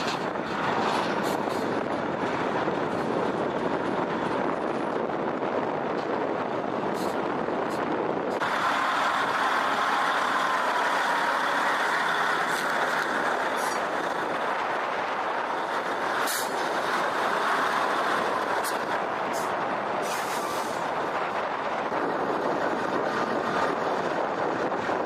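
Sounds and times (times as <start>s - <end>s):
heavy truck engine running: 0.0s - 25.0s.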